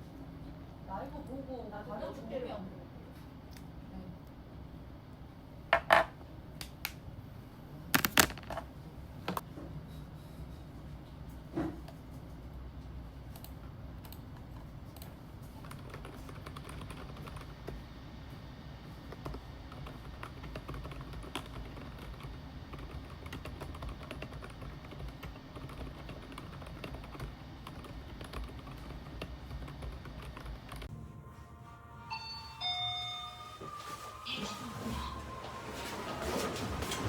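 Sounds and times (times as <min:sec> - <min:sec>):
computer keyboard typing: 0:14.9 - 0:17.8, 0:19.1 - 0:30.9
low steady hum: 0:17.2 - 0:37.0
short bright pitched notes: 0:30.9 - 0:36.4.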